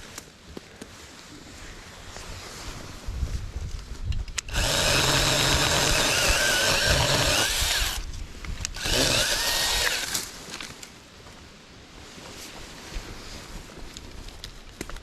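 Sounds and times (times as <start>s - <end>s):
chainsaw cutting tree limb: 4.4s - 8.1s, 8.7s - 10.3s.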